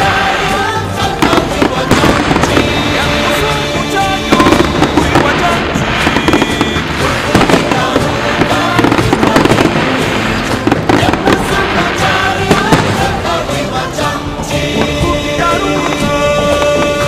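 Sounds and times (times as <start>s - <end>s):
fireworks bangs and crackles: 0.0s - 17.0s
loud music: 0.0s - 17.0s.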